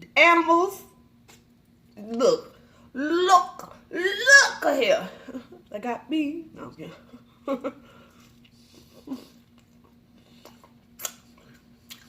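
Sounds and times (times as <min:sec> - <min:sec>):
steady low hum: 0:00.0 - 0:12.0
person chewing food: 0:08.0 - 0:12.0.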